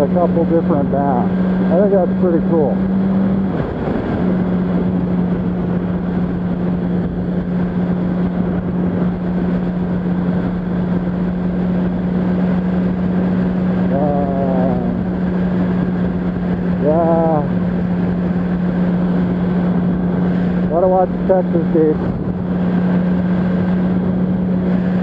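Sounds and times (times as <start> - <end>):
motorcycle engine cruising: 0.0 - 25.0
wind rushing over microphone: 0.0 - 25.0.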